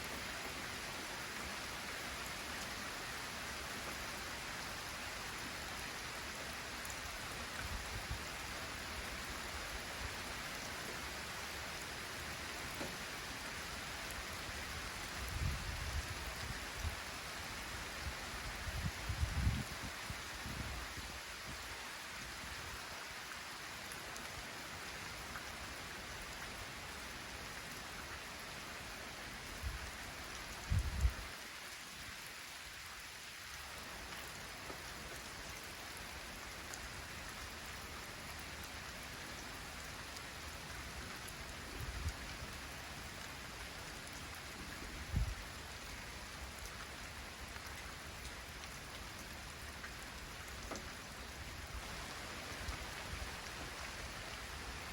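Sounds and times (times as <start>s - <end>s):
light rain falling: 0.0s - 54.9s.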